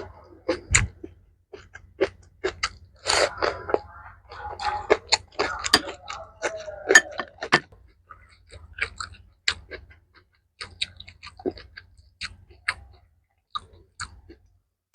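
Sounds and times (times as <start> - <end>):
chewing with wet mouth clicks: 0.0 - 14.5.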